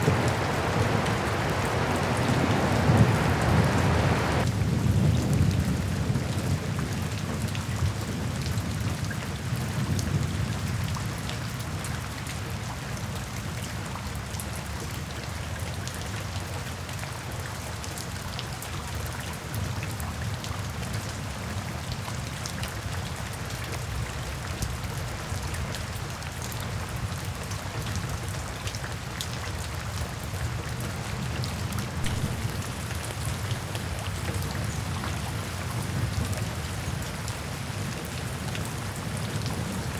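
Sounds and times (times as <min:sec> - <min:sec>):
low thunder rumble: 0:00.0 - 0:06.8, 0:32.0 - 0:36.8
heavy rain falling: 0:00.0 - 0:39.9.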